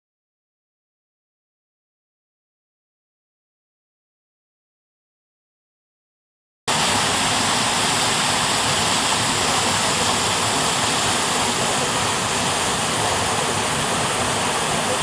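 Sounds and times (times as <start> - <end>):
waterfall rushing: 6.7 - 15.0.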